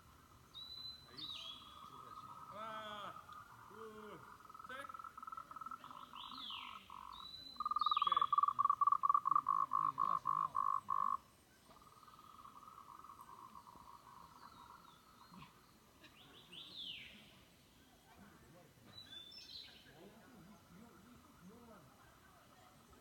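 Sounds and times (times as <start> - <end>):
frogs calling: 0.0 - 15.6.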